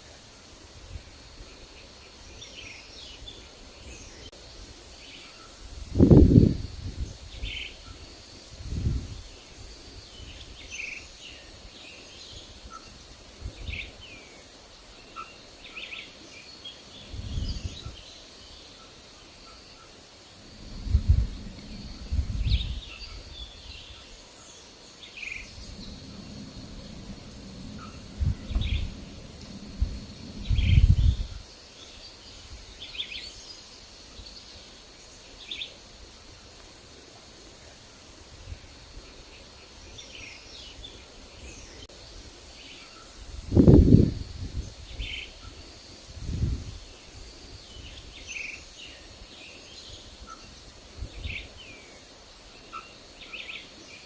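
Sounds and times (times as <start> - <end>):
faint steady hiss: 0.0 - 54.0
songbirds chirping: 0.0 - 54.0
wind gusts rumbling: 5.7 - 7.6, 8.5 - 9.4, 17.0 - 18.0, 20.4 - 24.2, 25.2 - 31.6, 43.2 - 45.3, 46.0 - 48.1.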